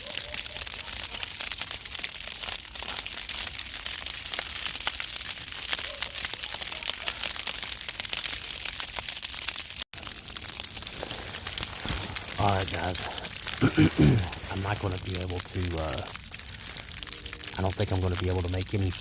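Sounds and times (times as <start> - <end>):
camping gear crinkling and rustling: 10.8 - 17.7.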